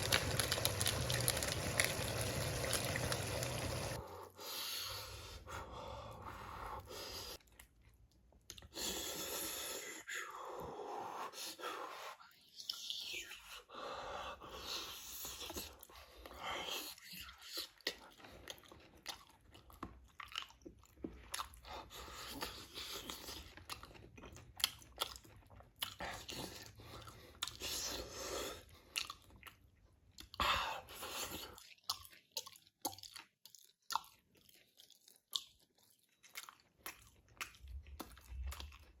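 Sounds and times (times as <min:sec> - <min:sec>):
chewing and crunching meat: 0:00.0 - 0:04.0, 0:07.4 - 0:09.0, 0:14.5 - 0:39.0.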